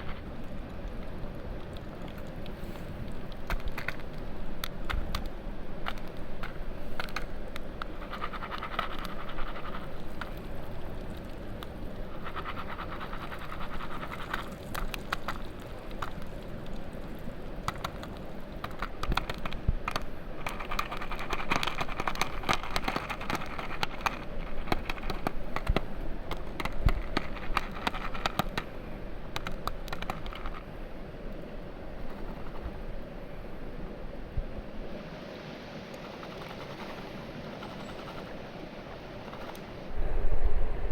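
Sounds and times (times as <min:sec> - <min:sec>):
popcorn popping and crackling: 0:00.0 - 0:28.7.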